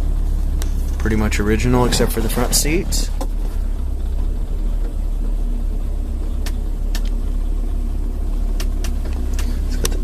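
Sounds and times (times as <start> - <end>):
car engine rumble while driving: 0.0 - 10.0.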